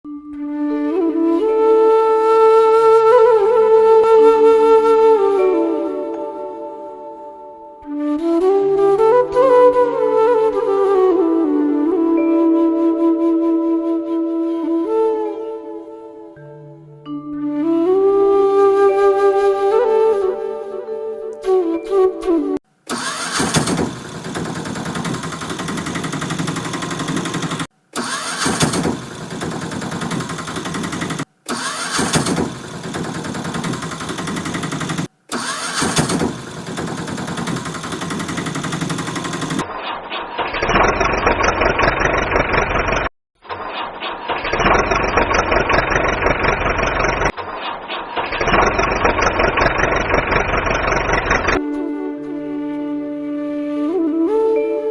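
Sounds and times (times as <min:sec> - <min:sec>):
engine starting and running: 0:22.9 - 0:51.8.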